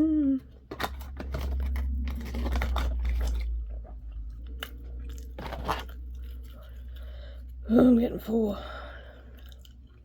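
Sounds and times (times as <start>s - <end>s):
chewing fried food: 0.9s - 7.7s, 9.1s - 10.0s.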